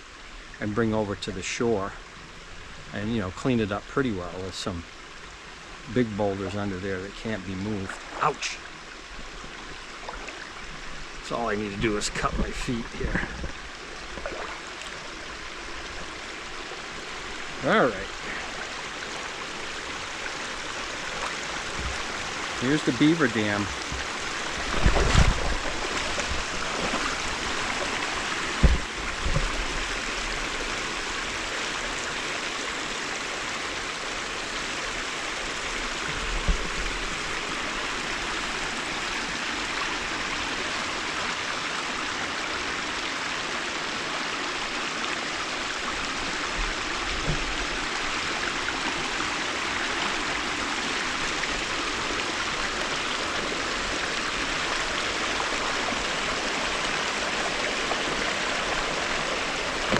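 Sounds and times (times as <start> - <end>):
river water rushing over a dam: 9.9 - 59.9
low knocks: 28.5 - 29.6.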